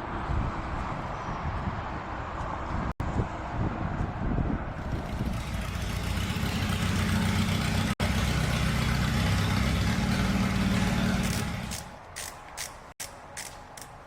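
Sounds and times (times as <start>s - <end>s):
engine idling: 4.8s - 11.9s.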